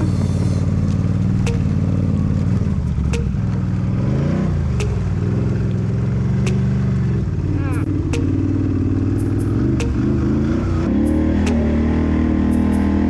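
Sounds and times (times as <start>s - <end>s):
sharp clicks: 1.5s - 1.8s, 3.2s - 3.6s, 4.8s - 5.2s, 6.5s - 6.7s, 8.2s - 8.5s, 9.8s - 10.2s.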